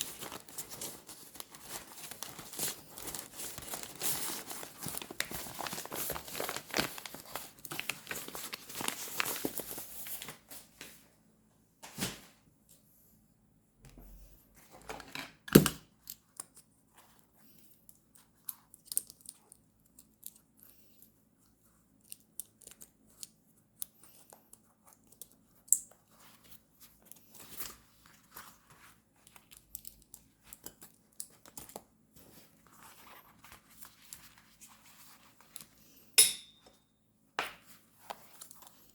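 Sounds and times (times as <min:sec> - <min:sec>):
paper tearing and crinkling: 0:00.0 - 0:10.3.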